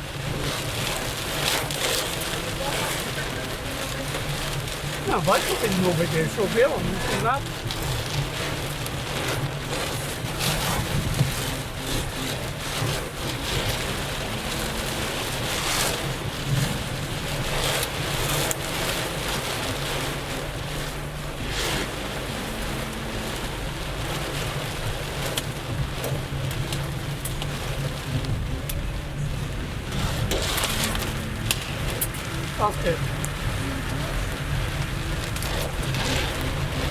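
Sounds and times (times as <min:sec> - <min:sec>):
low engine hum: 0:00.0 - 0:36.9
rain and tyres on wet road: 0:00.0 - 0:36.9
swishes of passing water: 0:29.4 - 0:36.9.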